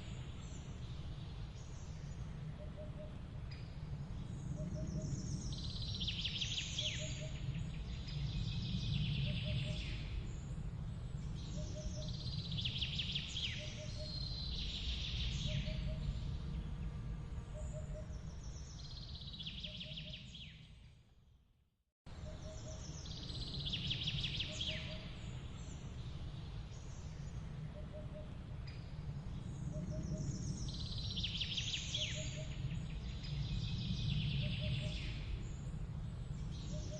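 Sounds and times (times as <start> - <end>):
songbird singing: 0.0 - 21.0, 22.1 - 36.9
steady low rumble: 7.0 - 19.5, 22.1 - 36.9.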